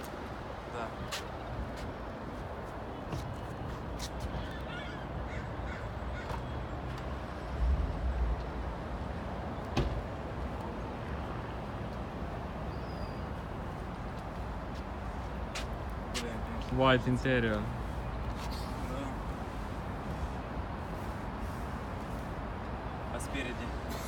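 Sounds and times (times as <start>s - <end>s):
birds cawing: 4.3s - 6.6s
low rumble: 7.5s - 9.1s.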